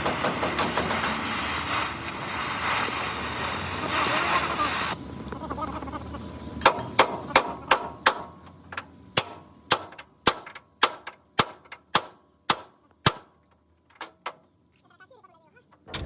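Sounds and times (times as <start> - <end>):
hammer striking steel: 6.6 - 8.4, 9.2 - 13.3.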